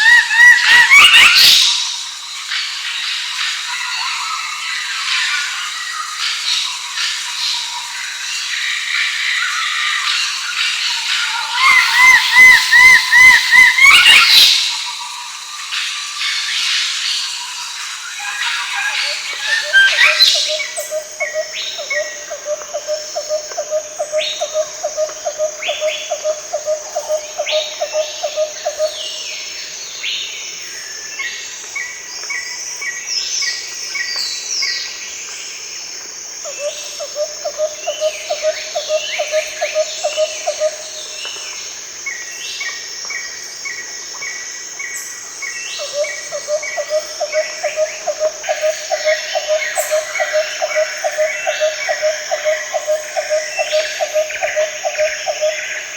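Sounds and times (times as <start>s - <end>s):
high insect drone: 0.0s - 55.9s
birds whistling: 11.0s - 15.0s, 18.2s - 22.4s.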